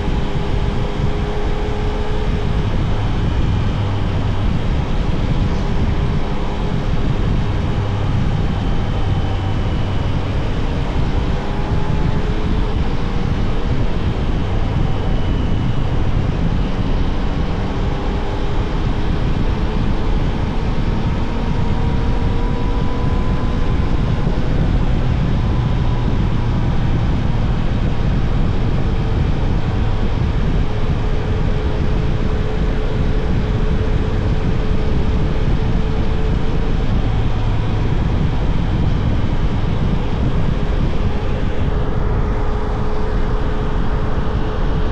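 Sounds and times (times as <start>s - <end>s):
motorcycle engine running: 0.0s - 44.9s
steady rushing noise: 0.0s - 44.9s.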